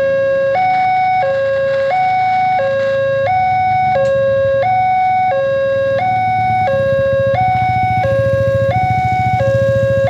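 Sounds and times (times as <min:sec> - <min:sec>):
level crossing two-tone alarm: 0:00.0 - 0:10.0.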